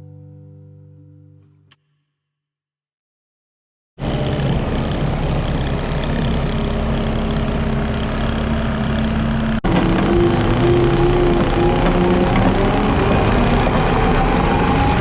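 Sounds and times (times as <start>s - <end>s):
diesel engine humming: 4.0s - 15.0s.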